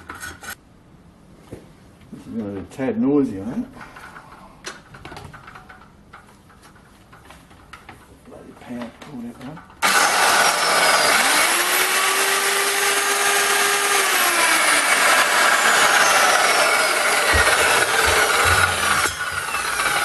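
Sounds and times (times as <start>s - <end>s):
circular saw grinding metal: 9.8s - 20.0s
saw blade winding down: 9.8s - 20.0s.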